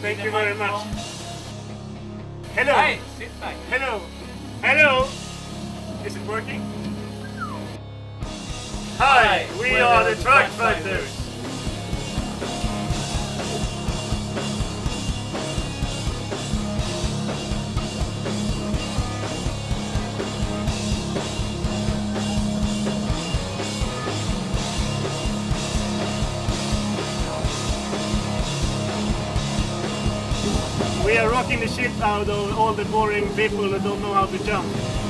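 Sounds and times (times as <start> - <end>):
rock band playing: 0.0 - 35.0
drum kit beat: 8.5 - 33.4.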